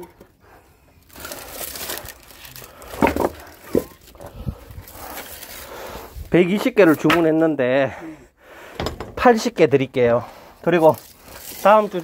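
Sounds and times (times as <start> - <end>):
rustling and crinkling: 0.0 - 7.5, 10.6 - 12.0.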